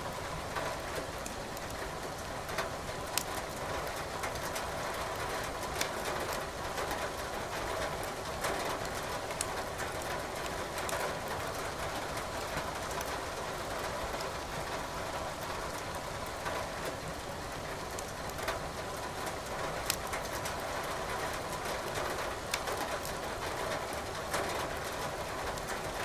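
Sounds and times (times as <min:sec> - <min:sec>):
firewood crackling and popping: 0:03.0 - 0:13.2, 0:17.9 - 0:18.6, 0:19.8 - 0:20.7, 0:21.4 - 0:26.0.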